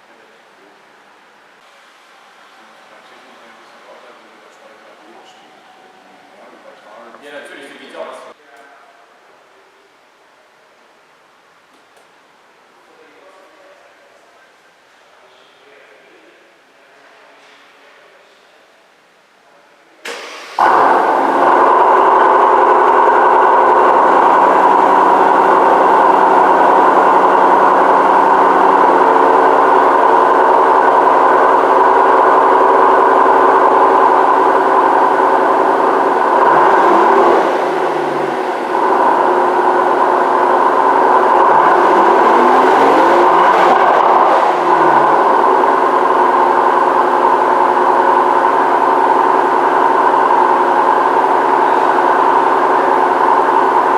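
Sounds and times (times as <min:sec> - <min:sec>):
car engine running: 0:20.2 - 0:53.9.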